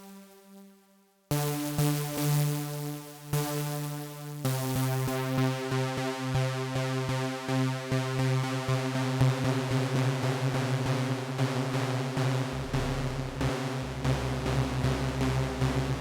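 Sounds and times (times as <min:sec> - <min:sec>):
synth pulsing pitched tone: 0:12.5 - 0:13.5.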